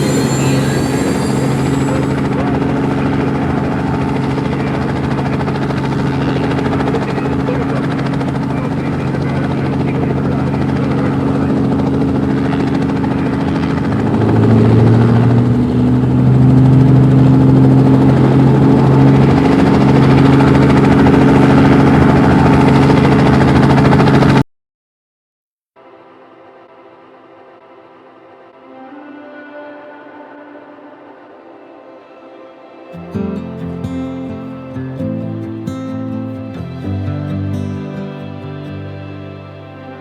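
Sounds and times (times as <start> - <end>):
helicopter running: 0.0 - 24.4, 33.0 - 40.0.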